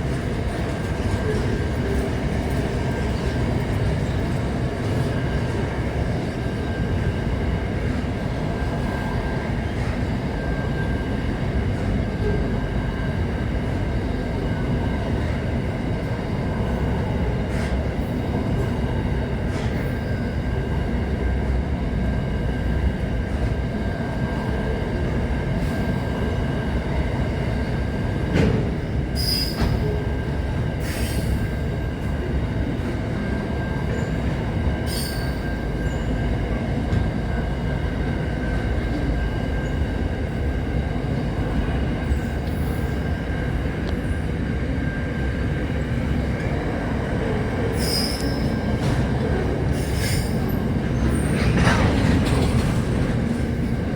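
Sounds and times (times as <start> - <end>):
train rumbling on rails: 0.0 - 53.9
wheel squeal: 29.2 - 30.0, 34.8 - 36.1, 47.7 - 49.0.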